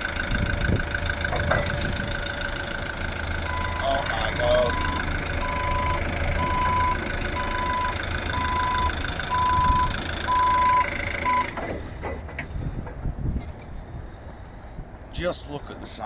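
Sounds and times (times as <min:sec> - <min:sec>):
vehicle engine running: 0:00.0 - 0:12.0
reversing alarm beeping: 0:03.4 - 0:11.6.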